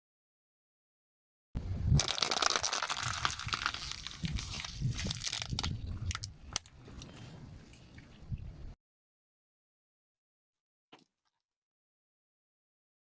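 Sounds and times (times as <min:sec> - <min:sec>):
car tyre crushing brittle object: 0:02.0 - 0:06.7.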